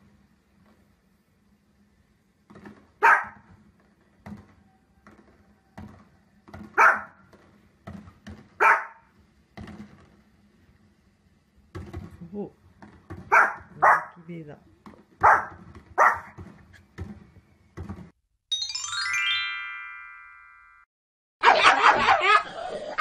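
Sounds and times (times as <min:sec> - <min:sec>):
faint pops and knocks: 0:02.4 - 0:08.6, 0:09.5 - 0:10.3, 0:11.7 - 0:13.8, 0:14.8 - 0:18.2
small dog barking: 0:03.0 - 0:03.4, 0:06.8 - 0:07.2, 0:08.6 - 0:09.1, 0:13.3 - 0:14.2, 0:15.2 - 0:16.4.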